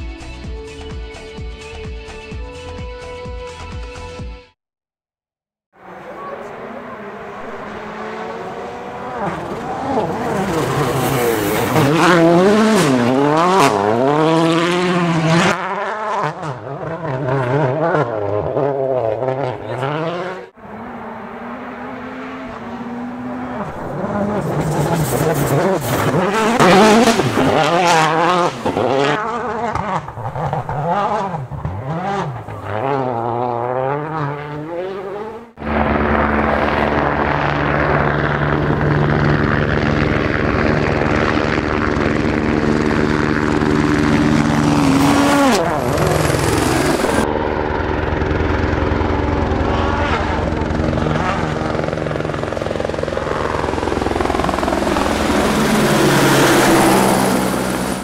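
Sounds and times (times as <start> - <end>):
rally car engines revving: 5.8 - 58.0
steady engine drone: 35.2 - 58.0.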